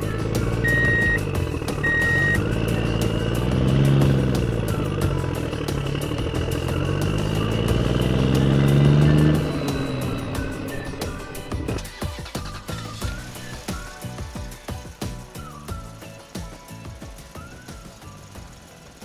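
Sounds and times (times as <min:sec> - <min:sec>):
reversing beeper: 0:00.0 - 0:03.5
truck engine revving: 0:00.0 - 0:14.3.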